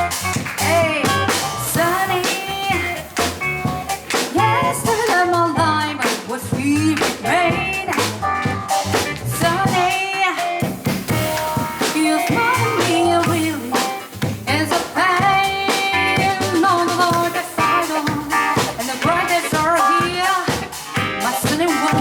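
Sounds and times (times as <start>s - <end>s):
double bass: 0.0s - 9.9s, 12.4s - 20.8s
drum kit with cymbals: 0.0s - 22.0s
person singing: 0.6s - 8.5s, 9.4s - 10.6s, 11.6s - 22.0s
piano: 7.0s - 22.0s.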